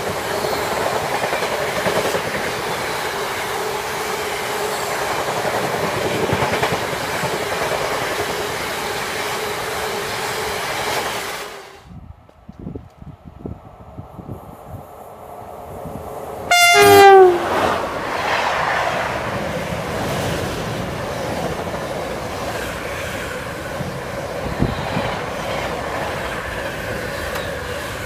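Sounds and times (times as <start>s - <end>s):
train wheels rattling on rail: 0.0s - 11.7s, 17.2s - 28.0s
train horn blast: 16.5s - 17.8s.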